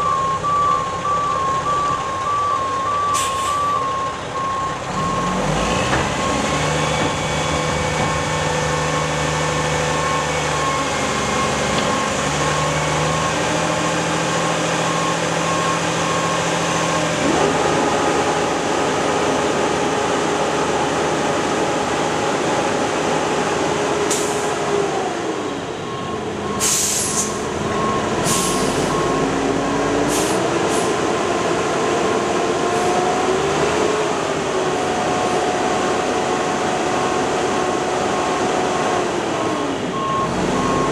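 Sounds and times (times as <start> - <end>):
backup alarm beeping: 0.0 - 5.4.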